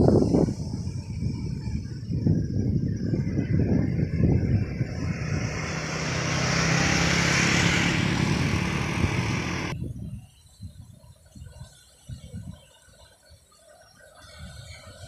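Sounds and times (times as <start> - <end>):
heavy vehicle passing: 3.2 - 9.8.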